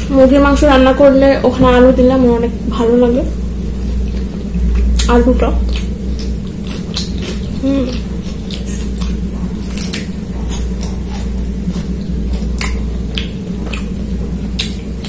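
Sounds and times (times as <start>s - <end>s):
wet squishy chewing: 3.3s - 15.0s.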